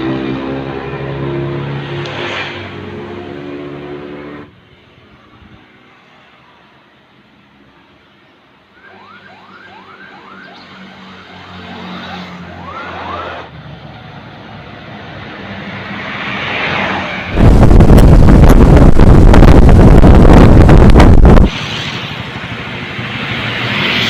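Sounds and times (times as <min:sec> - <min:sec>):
siren yelping: 0:08.8 - 0:13.5
wind buffeting on microphone: 0:17.3 - 0:21.5.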